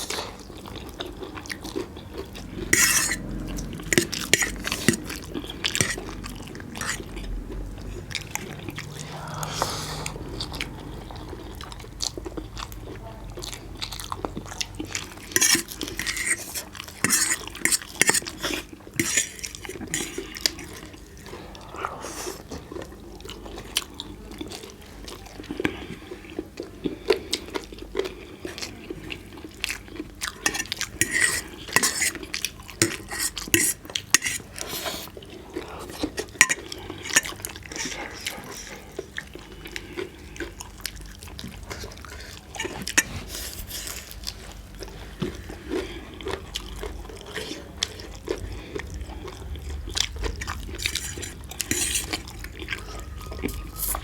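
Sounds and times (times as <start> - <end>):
chewing and biting: 0.0 - 54.0
dishes clinking: 36.2 - 37.9.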